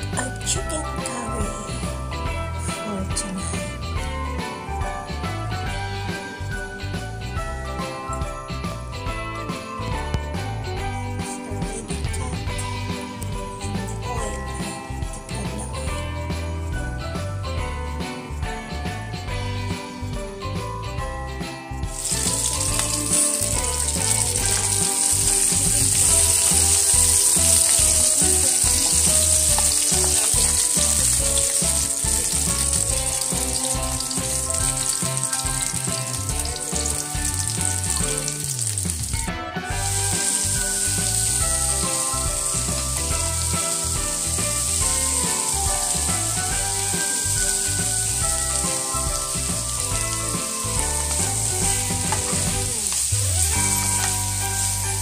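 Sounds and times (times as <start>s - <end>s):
vegetables sizzling in a frying pan: 22.0s - 55.0s.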